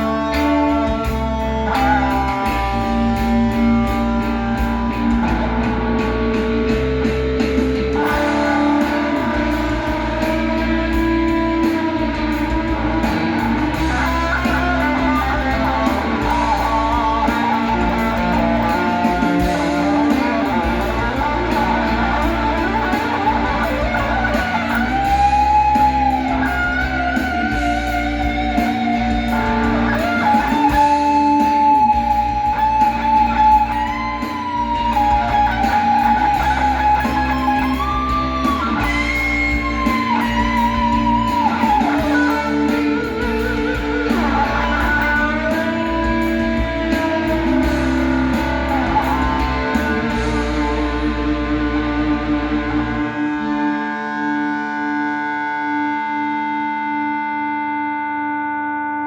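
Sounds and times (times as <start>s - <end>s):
steady bass and backing: 0.0s - 58.4s
electric lead guitar bends: 0.0s - 59.0s.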